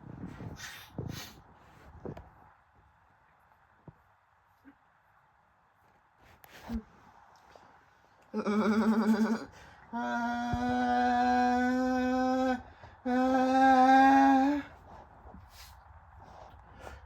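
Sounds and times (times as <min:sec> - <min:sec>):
voice holding long notes: 0:08.4 - 0:14.8.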